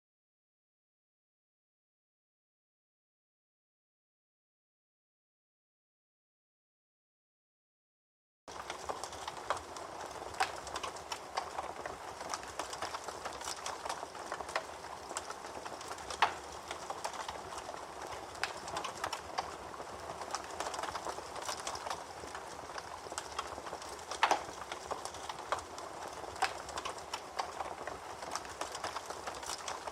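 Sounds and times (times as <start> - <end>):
campfire crackling and popping: 8.5 - 29.9.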